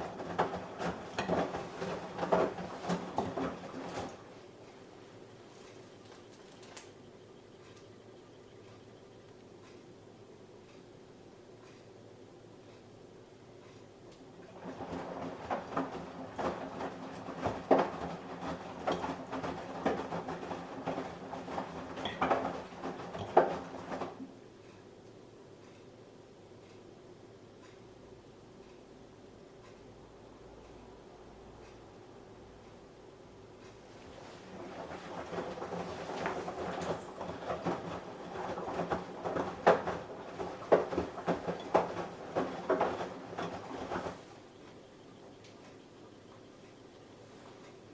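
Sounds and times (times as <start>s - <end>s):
clunks and knocks of the load: 0.0s - 4.2s, 14.5s - 24.3s, 34.6s - 44.8s
laundry tumbling thuds: 0.0s - 4.3s, 14.5s - 24.3s, 34.1s - 44.4s
washing machine drum turning: 0.0s - 4.3s, 14.3s - 24.4s, 34.1s - 45.8s.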